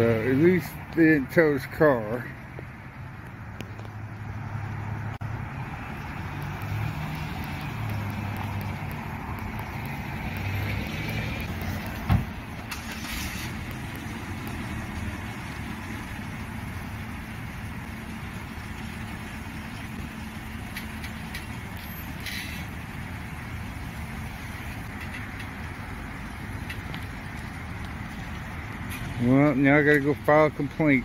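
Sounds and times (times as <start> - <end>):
car engines idling: 0.0 - 31.0
sharp thump: 12.0 - 12.4.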